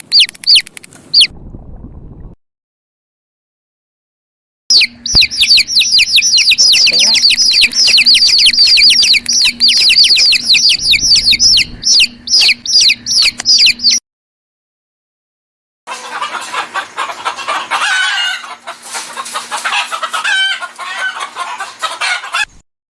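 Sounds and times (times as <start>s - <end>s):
bird chirps sliding downward: 0.0s - 1.3s, 4.7s - 14.0s
chickens clucking: 4.8s - 14.0s, 15.9s - 22.6s.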